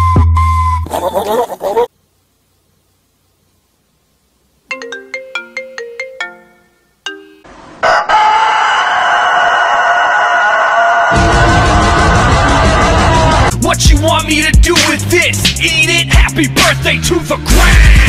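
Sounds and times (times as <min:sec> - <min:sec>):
rooster crowing: 0:07.8 - 0:13.5.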